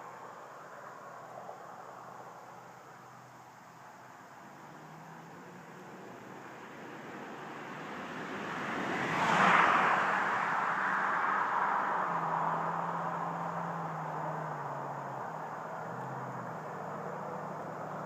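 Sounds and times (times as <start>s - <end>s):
pickup truck driving past: 4.5s - 18.0s.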